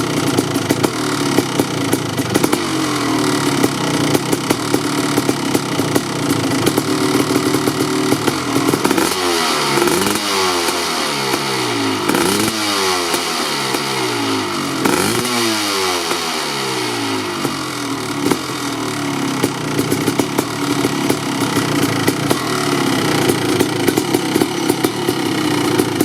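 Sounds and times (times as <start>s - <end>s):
two-stroke engine revving: 0.0s - 26.0s.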